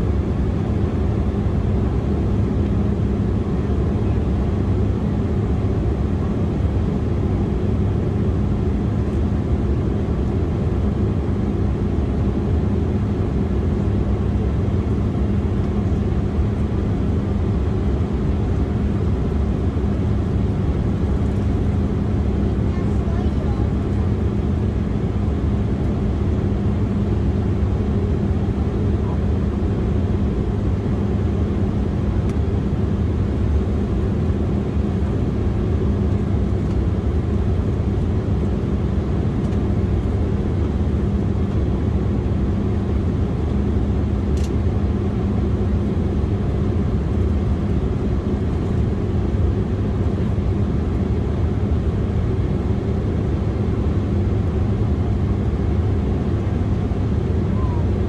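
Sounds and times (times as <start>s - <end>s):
airliner cabin engine rumble: 0.0s - 58.0s
faint click: 44.4s - 44.6s.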